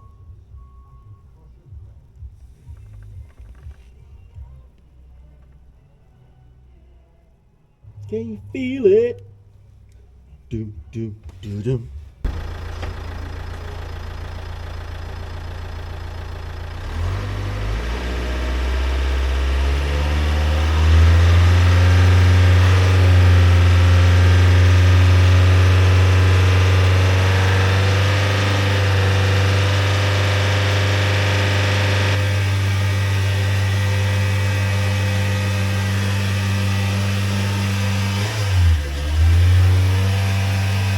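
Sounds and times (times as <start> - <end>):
diesel engine idling and revving: 12.0 - 40.9.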